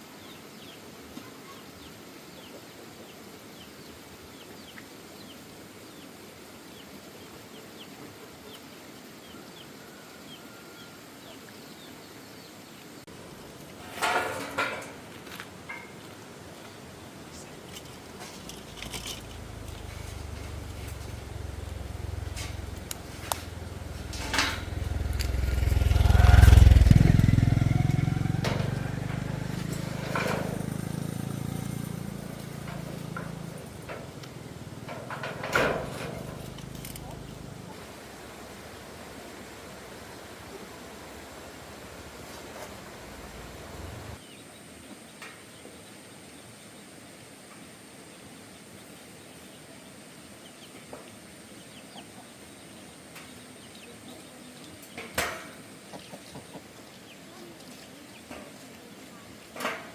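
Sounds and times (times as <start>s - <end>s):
faint birds chirping: 0.0s - 59.9s
low engine hum: 17.2s - 44.2s.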